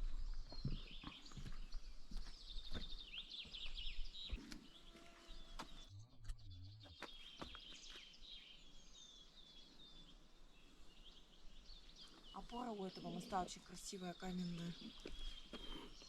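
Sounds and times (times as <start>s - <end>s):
footsteps: 0.0s - 5.8s
songbirds chirping: 0.0s - 16.0s.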